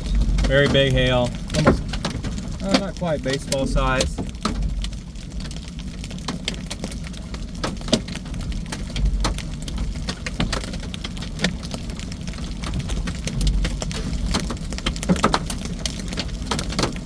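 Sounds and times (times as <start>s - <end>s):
steady low rumble: 0.0s - 7.6s
hail striking a vehicle: 0.0s - 17.0s.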